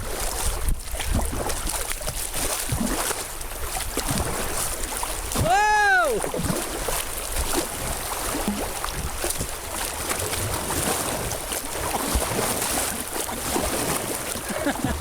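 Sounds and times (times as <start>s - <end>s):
small splashes: 0.0s - 15.0s
river water rushing: 4.5s - 8.9s, 9.8s - 15.0s.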